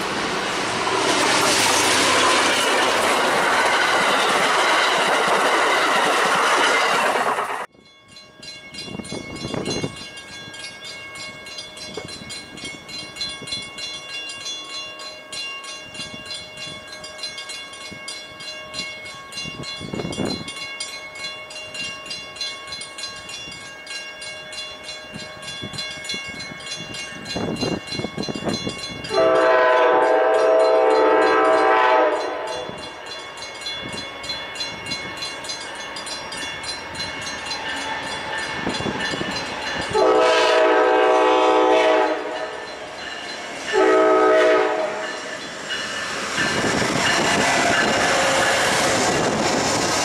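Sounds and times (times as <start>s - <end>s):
train wheels rushing on rail: 0.0s - 7.7s, 25.1s - 50.0s.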